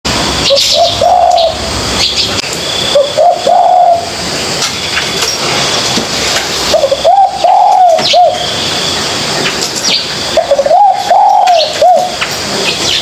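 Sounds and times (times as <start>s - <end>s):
dove cooing: 0.4s - 2.3s, 2.9s - 4.2s, 6.7s - 8.5s, 10.3s - 12.3s
small birds chirping: 0.4s - 13.0s.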